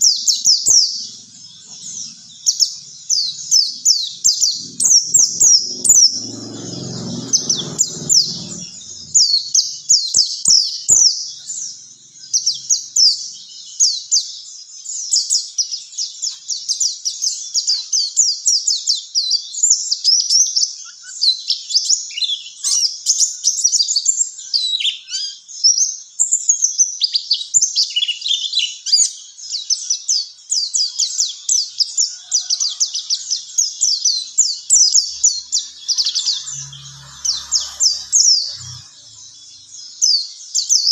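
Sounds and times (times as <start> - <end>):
bird chirps and trills: 0.0 - 18.1, 29.4 - 40.9.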